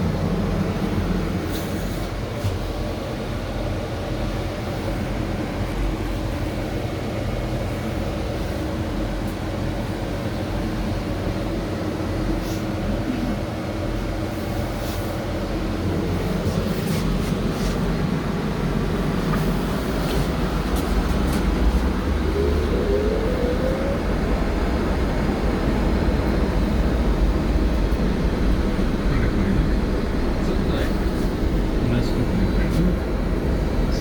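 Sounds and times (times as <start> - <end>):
road noise: 0.0 - 34.0
trolleybus electric hum: 0.0 - 34.0
rising electric whine: 20.6 - 34.0.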